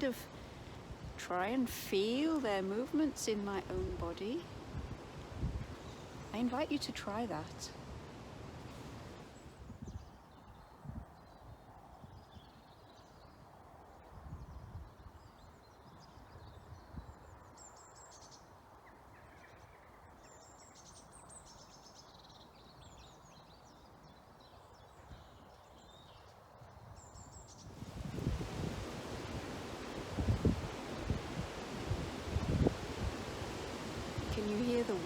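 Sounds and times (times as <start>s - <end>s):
songbirds chirping: 0.0s - 7.9s, 8.6s - 35.0s
wind rumbling: 27.6s - 35.0s.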